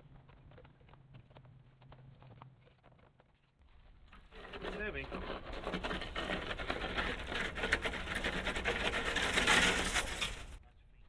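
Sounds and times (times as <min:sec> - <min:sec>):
air compressor clattering and scraping: 0:04.4 - 0:10.6.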